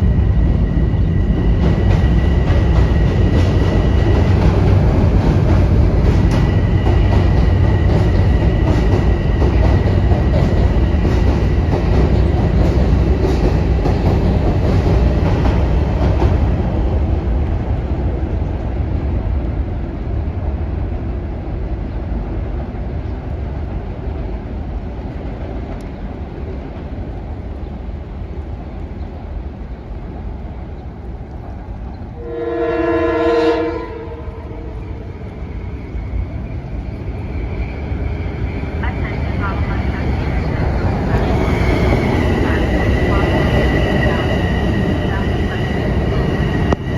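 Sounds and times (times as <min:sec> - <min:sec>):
train rumbling past: 0:00.0 - 0:46.9
train horn: 0:32.2 - 0:35.0.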